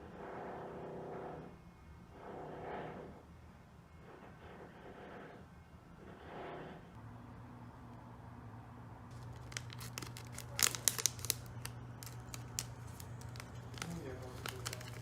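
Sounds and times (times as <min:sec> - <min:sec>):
crinkling and crackling: 0:09.1 - 0:15.0.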